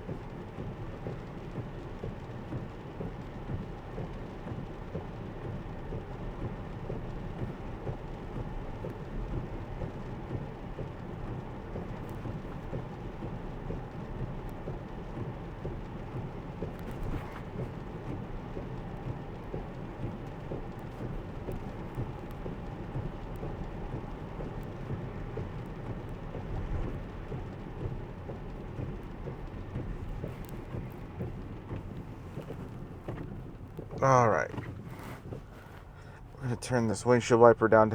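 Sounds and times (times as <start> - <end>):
rain on car roof: 0.0 - 37.9
tyre and road noise: 29.0 - 36.8.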